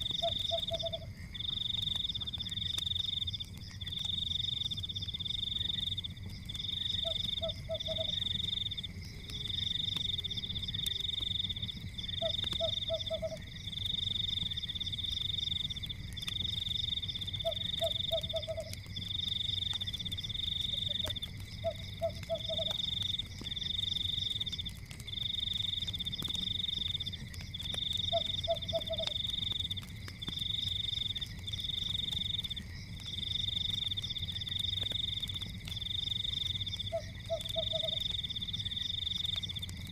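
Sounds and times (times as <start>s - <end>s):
low frog croak: 0.0s - 4.1s, 6.7s - 11.2s, 12.0s - 13.9s, 17.2s - 19.1s, 20.6s - 23.1s, 27.6s - 29.9s, 36.7s - 38.2s
fireplace crackling: 0.0s - 39.9s
frogs trilling: 0.0s - 39.9s.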